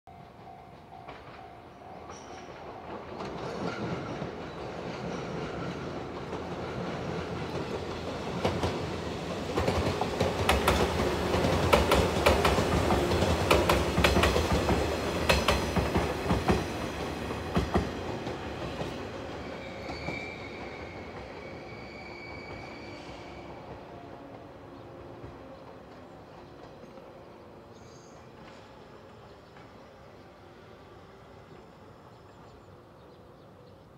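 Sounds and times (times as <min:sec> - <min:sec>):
electric train rumbling past: 0:00.1 - 0:33.9
high brake squeal: 0:19.4 - 0:23.6.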